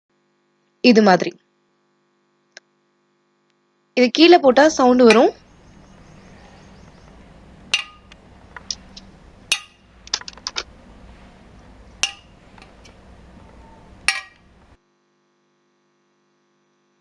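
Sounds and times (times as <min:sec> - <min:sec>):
hard candy clinking on a plate: 0:04.5 - 0:14.8.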